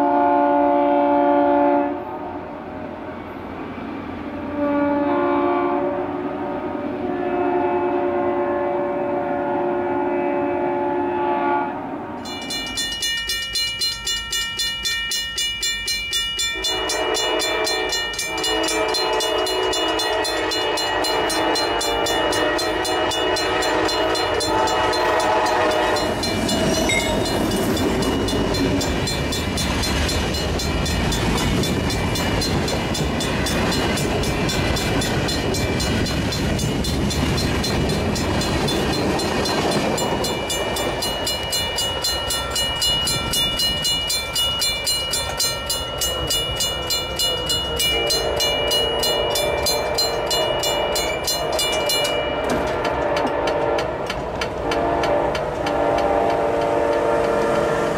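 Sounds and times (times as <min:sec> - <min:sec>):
locomotive horn: 0:00.0 - 0:02.5, 0:04.4 - 0:12.2, 0:16.5 - 0:27.3, 0:47.2 - 0:51.6, 0:52.5 - 0:57.9
train wheels rushing on rail: 0:09.0 - 0:57.9
crossing bell dinging: 0:12.2 - 0:53.4
wheels clattering over rail joints: 0:23.0 - 0:47.9, 0:49.2 - 0:57.4.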